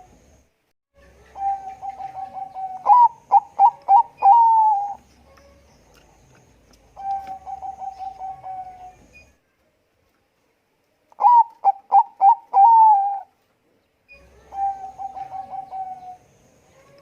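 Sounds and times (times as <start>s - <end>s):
dove cooing: 1.2s - 5.7s, 6.9s - 9.0s, 11.2s - 13.3s, 14.1s - 17.0s.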